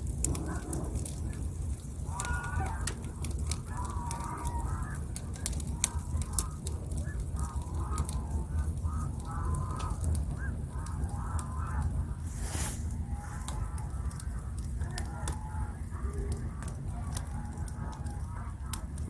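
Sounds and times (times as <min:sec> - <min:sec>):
wood fire crackling: 0:00.0 - 0:19.0
birds calling: 0:06.4 - 0:13.8.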